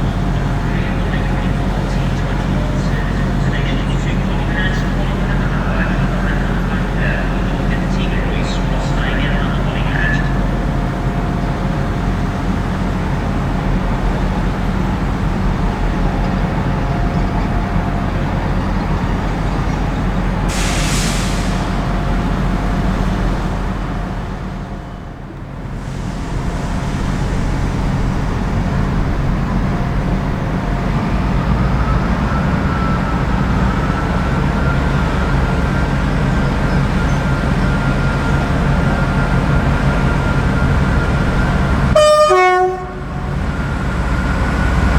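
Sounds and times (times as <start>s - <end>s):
diesel train engine running: 0.0s - 44.9s
air hiss: 20.5s - 21.9s.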